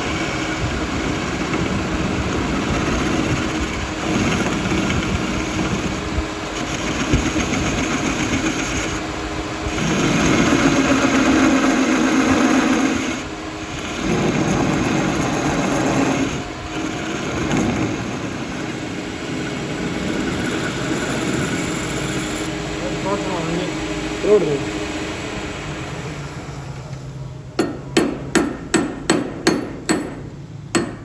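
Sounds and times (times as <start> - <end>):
workshop machine running: 0.0 - 31.0.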